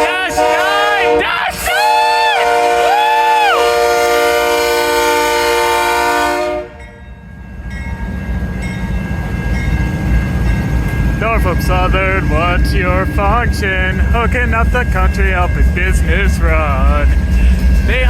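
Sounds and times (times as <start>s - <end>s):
locomotive air horn chord: 0.0s - 7.0s
train rumble: 0.0s - 18.0s.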